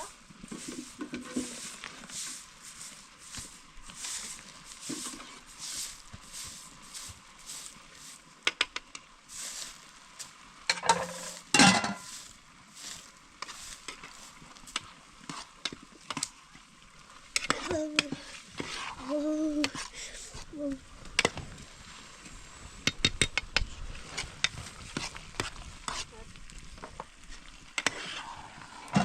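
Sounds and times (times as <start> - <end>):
utensil stirring: 0.0 - 7.8, 12.8 - 16.3, 17.4 - 20.4, 27.8 - 29.0
food frying in a pan: 0.0 - 21.4, 22.2 - 29.0.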